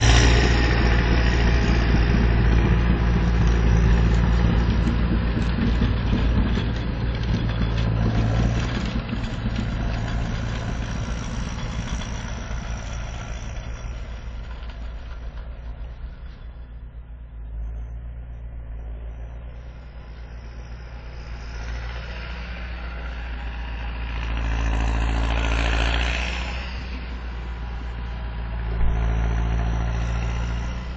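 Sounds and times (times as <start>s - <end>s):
tractor diesel engine running: 0.0s - 30.9s.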